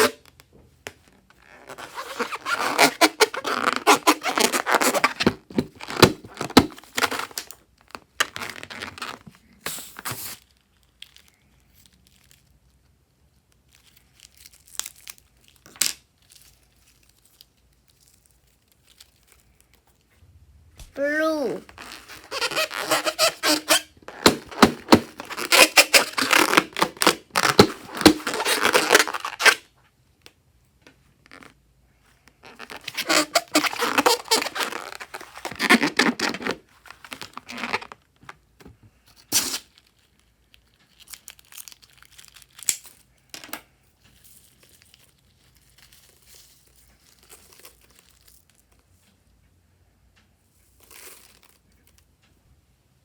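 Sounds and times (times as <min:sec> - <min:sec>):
slime crackling and squelching: 0:20.8 - 0:29.6.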